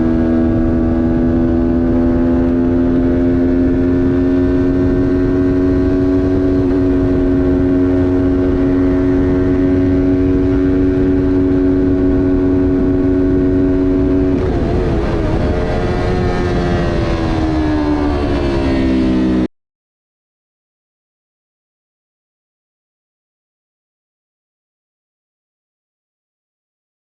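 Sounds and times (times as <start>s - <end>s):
motorcycle engine at high revs: 0.0s - 19.5s.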